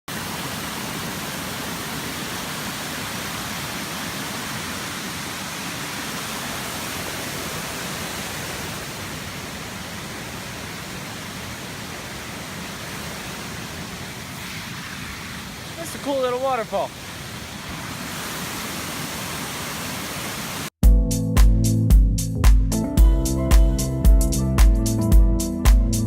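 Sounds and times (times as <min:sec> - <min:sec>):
small waterfall rushing: 0:00.1 - 0:20.8.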